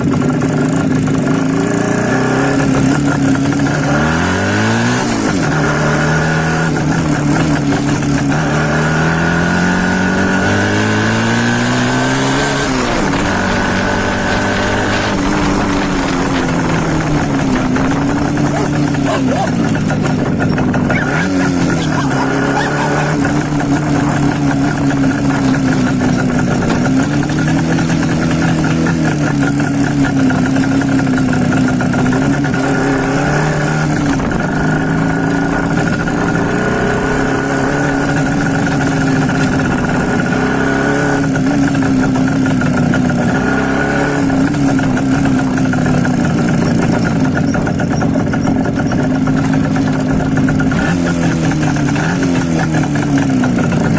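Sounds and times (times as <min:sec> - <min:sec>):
two-stroke motorcycle engine revving: 0:00.0 - 0:53.9.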